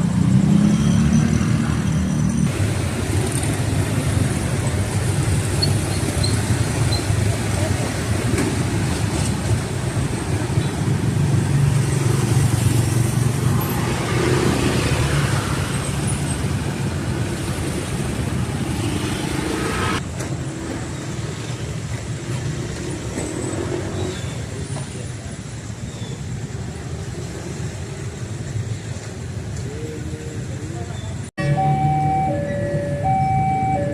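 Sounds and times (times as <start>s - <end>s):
cars and motorcycles passing: 0.0s - 20.1s, 31.4s - 33.9s.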